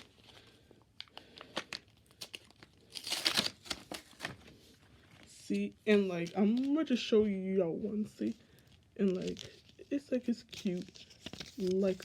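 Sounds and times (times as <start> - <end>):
packaging crinkling: 0.0 - 5.3, 8.2 - 12.0
packaging ripping: 1.0 - 4.4.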